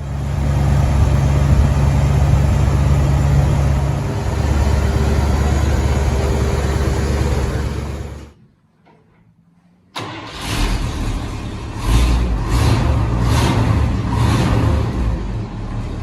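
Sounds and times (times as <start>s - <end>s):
truck engine surging: 0.0s - 8.4s.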